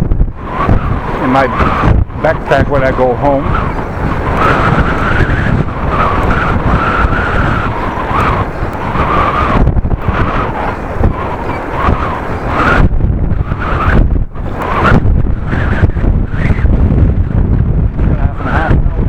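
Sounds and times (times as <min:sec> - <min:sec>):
wind buffeting microphone: 0:00.0 - 0:19.0
wavering whistle-like tone: 0:02.9 - 0:12.8.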